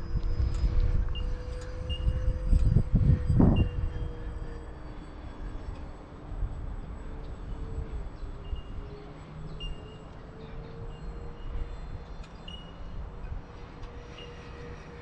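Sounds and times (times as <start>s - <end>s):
wind buffeting microphone: 0.0s - 9.0s
model jet fan whine: 0.0s - 15.0s.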